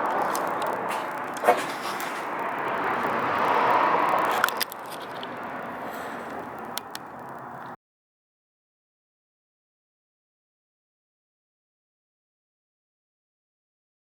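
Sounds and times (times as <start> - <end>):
steady background noise: 0.0 - 7.8
small clicks and knocks: 4.2 - 5.5, 6.2 - 7.8.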